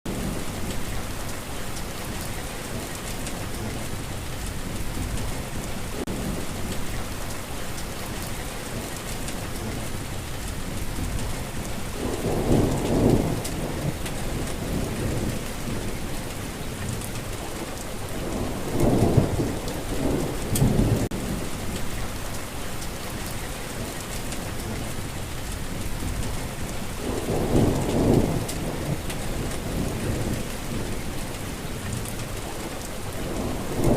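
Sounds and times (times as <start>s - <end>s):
steady rainfall: 0.0s - 33.9s
low rolls of thunder: 8.0s - 22.3s, 23.1s - 33.9s.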